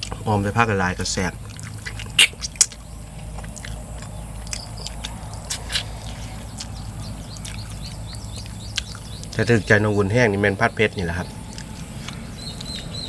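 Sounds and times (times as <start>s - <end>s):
wet lip smacks: 1.4s - 6.7s
chewing clicks: 1.4s - 9.5s, 11.5s - 13.0s.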